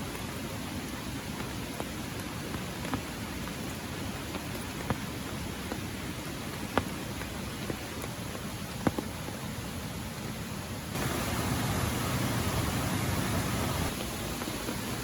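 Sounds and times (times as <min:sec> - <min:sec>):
light rain hiss: 0:00.0 - 0:15.0
heavy raindrops striking: 0:10.9 - 0:15.0.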